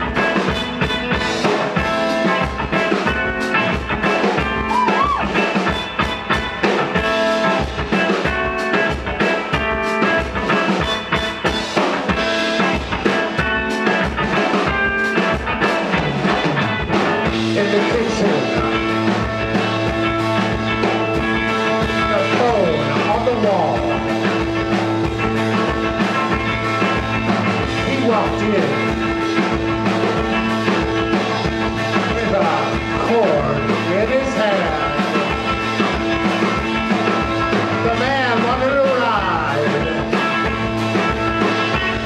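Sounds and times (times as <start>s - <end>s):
electric guitar: 0.0s - 42.0s
rock band playing: 0.0s - 42.0s.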